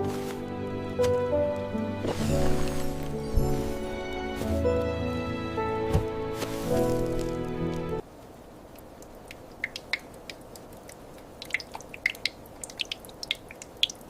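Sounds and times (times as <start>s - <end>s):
soft background music: 0.0s - 8.0s
faint steady hiss: 6.3s - 14.0s
drip-like ticks: 8.7s - 14.0s.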